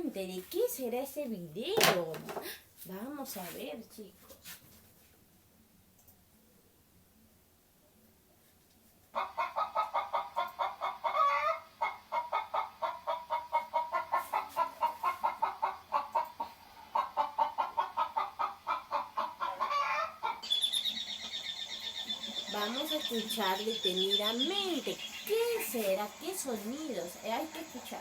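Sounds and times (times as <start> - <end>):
hens clucking: 9.1 - 28.0.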